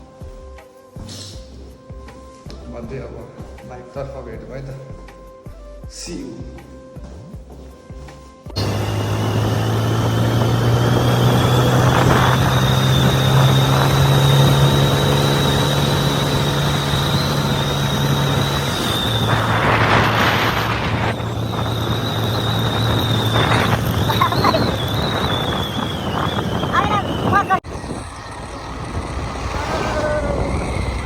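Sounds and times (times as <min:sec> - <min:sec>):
gust of noise: 0:08.6 - 0:31.0
motorcycle engine running: 0:08.6 - 0:31.0.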